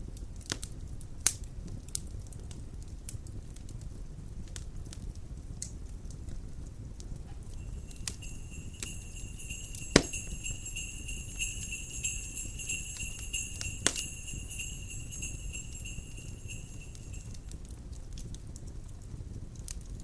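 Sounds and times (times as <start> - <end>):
fireplace fire crackling: 0.1 - 20.0
sleigh bells shaking: 7.4 - 17.5.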